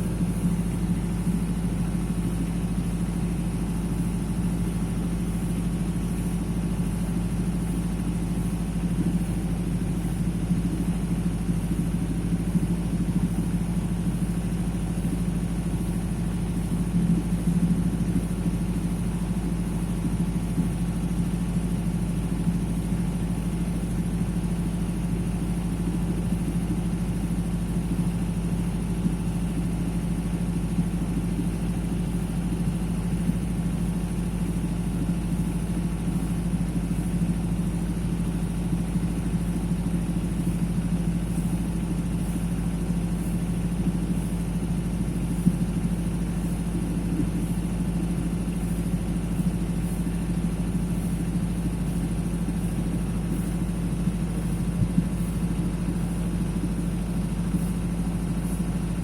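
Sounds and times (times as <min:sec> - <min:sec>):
generator engine humming: 0:41.2 - 0:59.0.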